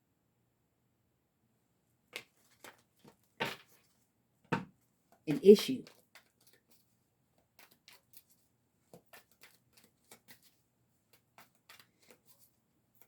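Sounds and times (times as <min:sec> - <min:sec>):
cards being shuffled: 0:05.7 - 0:13.0.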